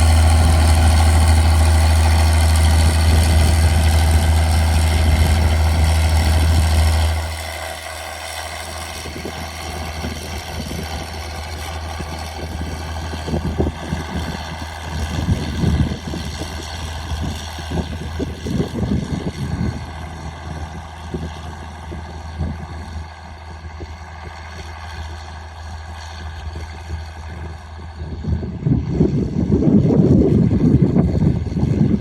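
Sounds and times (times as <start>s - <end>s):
diesel tractor engine droning: 0.0s - 32.0s.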